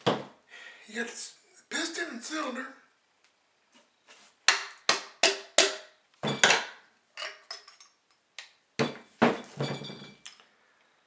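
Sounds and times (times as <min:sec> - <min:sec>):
metal parts clinking on hard surface: 0:06.3 - 0:08.2, 0:08.8 - 0:10.5.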